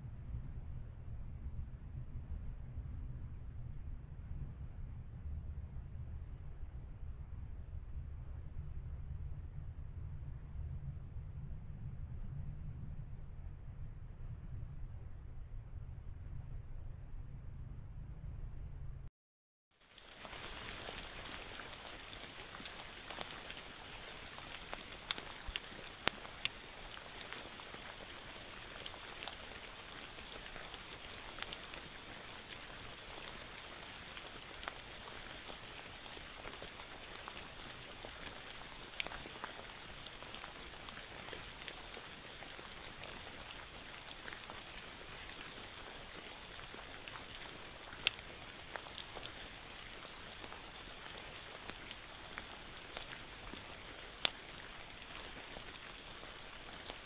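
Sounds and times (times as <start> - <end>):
rain pattering on foliage: 19.7 - 57.0
drip ticks: 20.0 - 57.0.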